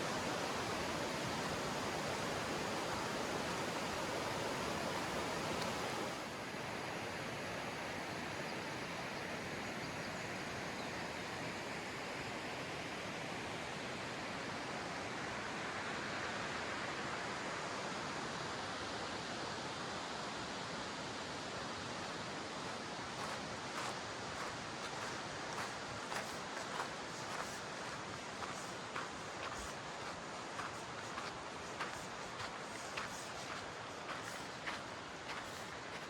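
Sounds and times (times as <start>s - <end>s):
river rushing over stones: 0.0s - 6.9s, 22.0s - 36.0s
footsteps on loose rocks: 23.2s - 36.0s.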